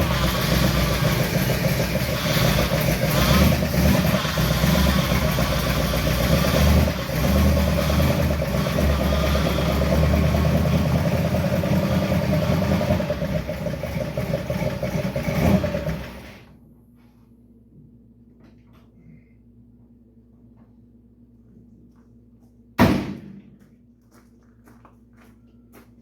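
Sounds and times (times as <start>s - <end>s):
vehicle engine idling: 0.0s - 16.5s.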